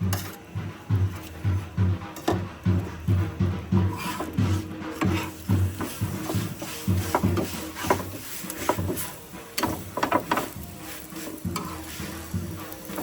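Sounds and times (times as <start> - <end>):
utensil scraping a pan: 0.0 - 0.4, 3.5 - 13.0
light sizzle: 4.0 - 13.0
utensil knocking against pan: 5.0 - 10.6.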